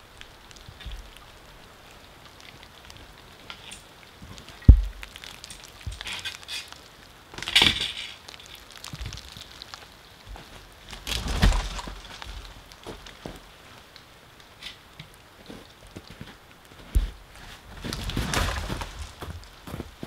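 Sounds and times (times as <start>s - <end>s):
tree falling and branches crashing: 0.0s - 14.0s, 15.4s - 20.0s
wood cracking: 0.0s - 20.0s.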